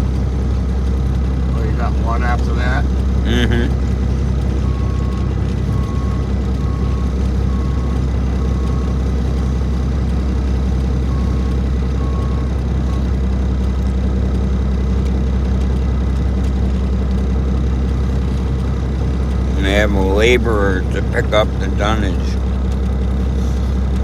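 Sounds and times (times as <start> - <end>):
diesel truck engine rumbling: 0.0 - 24.0
reversing alarm beeping: 4.6 - 9.1, 11.0 - 13.1.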